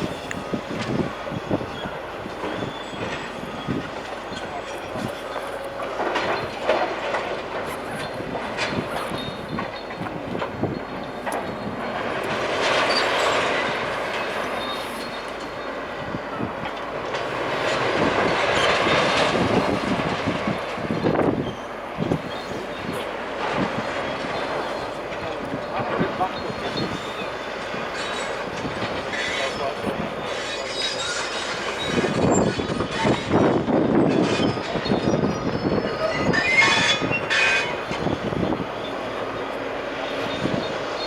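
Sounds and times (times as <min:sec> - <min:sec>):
metal scraping and squealing: 0:10.6 - 0:15.6, 0:22.3 - 0:39.2.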